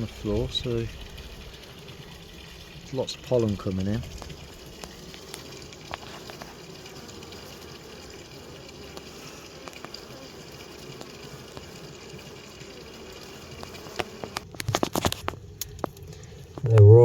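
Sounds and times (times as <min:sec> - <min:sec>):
honeybee colony humming: 0:00.0 - 0:14.5, 0:15.4 - 0:17.0
faint ticks: 0:03.2 - 0:14.5.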